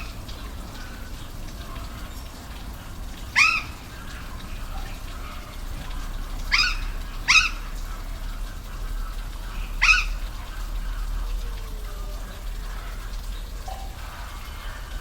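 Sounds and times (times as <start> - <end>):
waterfall rushing: 0.0 - 15.0
upward-sweeping animal calls: 3.3 - 3.8, 6.5 - 7.7, 9.8 - 10.3.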